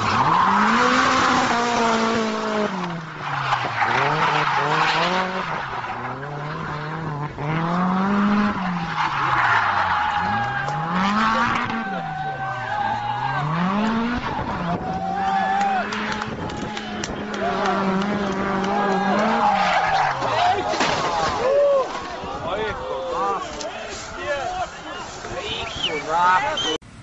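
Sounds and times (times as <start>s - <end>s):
vehicle engine revving hard: 0.0s - 20.6s.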